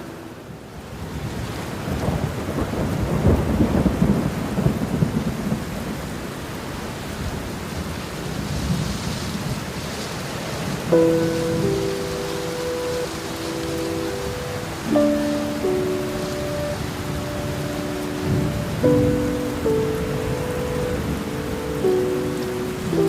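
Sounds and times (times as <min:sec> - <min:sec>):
steady rain: 0:00.0 - 0:23.0
thunder rumble: 0:01.1 - 0:06.3
soft background music: 0:10.9 - 0:23.0.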